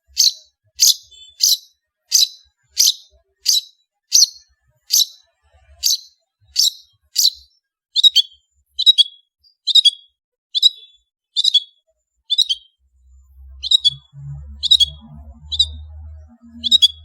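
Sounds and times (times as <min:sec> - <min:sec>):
bird singing sharp high notes: 0:00.0 - 0:05.2, 0:05.8 - 0:17.0
faint low hum: 0:12.8 - 0:17.0.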